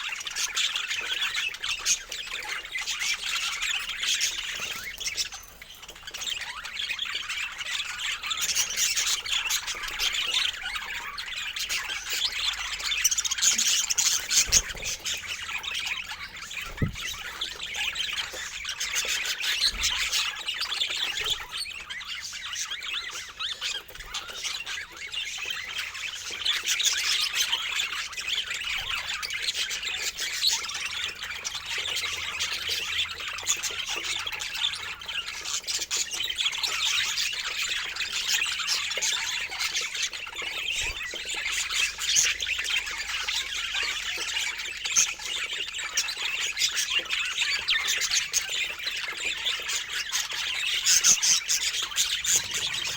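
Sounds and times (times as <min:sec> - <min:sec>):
flock of birds squawking and chirping: 0:00.0 - 0:52.9.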